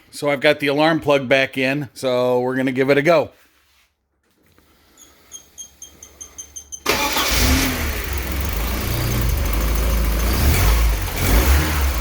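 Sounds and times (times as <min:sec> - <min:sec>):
engine cranking and starting: 0:06.3 - 0:12.0.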